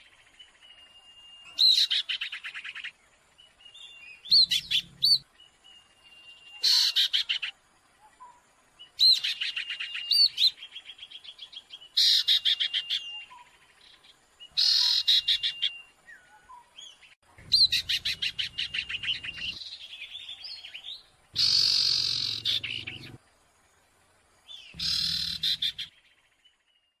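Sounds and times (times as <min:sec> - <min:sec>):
songbird chattering trills: 0:01.5 - 0:02.9, 0:03.8 - 0:05.2, 0:06.4 - 0:07.5, 0:14.5 - 0:15.8, 0:17.4 - 0:23.2, 0:24.5 - 0:26.0.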